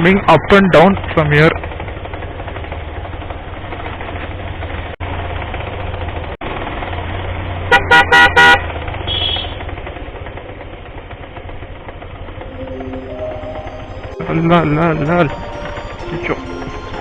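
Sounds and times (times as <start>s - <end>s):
motorcycle engine running: 0.7s - 7.7s, 8.6s - 12.5s
vehicle horn toots: 7.7s - 9.5s.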